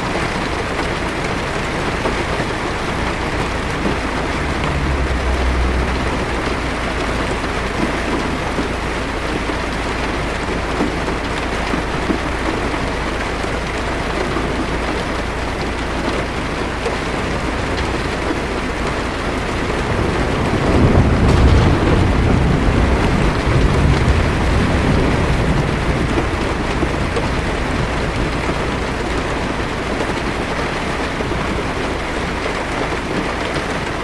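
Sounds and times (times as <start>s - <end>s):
deep drone: 0.0s - 10.8s, 11.7s - 32.3s
heavy rain on a car roof: 0.0s - 34.0s
low rumble: 1.2s - 9.7s, 16.4s - 31.1s.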